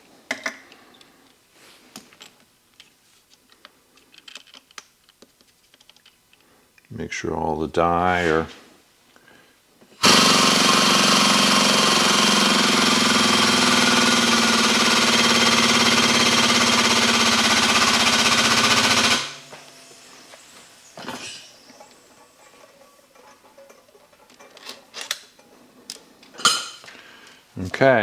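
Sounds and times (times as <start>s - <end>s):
hydraulic pump pulsing: 10.0s - 25.4s
metal clank: 19.0s - 25.6s.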